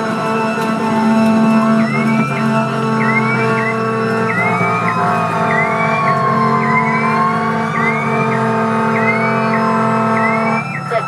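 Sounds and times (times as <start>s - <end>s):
fire engine siren: 0.0s - 11.0s.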